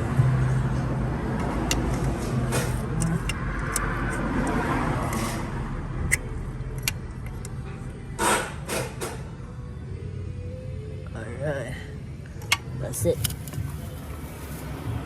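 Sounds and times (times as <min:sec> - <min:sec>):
vehicle engine running: 0:00.0 - 0:08.5
short scraping noises: 0:05.0 - 0:05.6.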